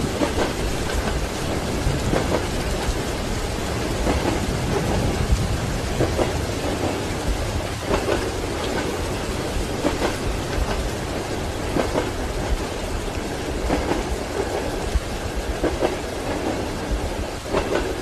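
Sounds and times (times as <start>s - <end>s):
low rumble of moving carriage: 0.0s - 18.0s
steady rain: 0.0s - 18.0s
train wheels clacking over rail joints: 0.0s - 18.0s.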